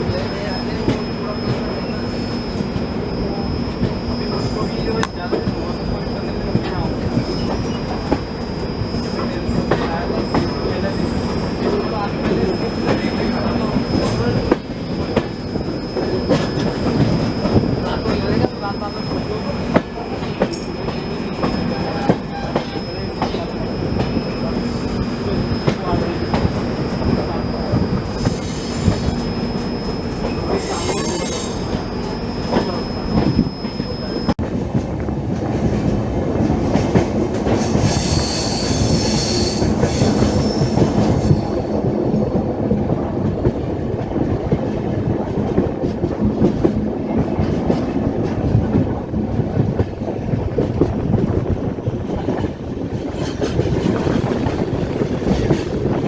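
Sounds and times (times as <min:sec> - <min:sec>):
train wheels rumbling and clattering: 0:00.0 - 0:56.0
high wheel squeal: 0:00.1 - 0:34.4, 0:37.4 - 0:41.9.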